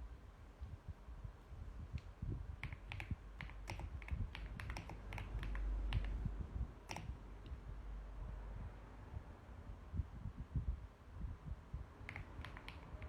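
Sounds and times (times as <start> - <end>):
mechanical keyboard typing: 2.6 - 6.2, 6.8 - 7.2, 12.0 - 13.0.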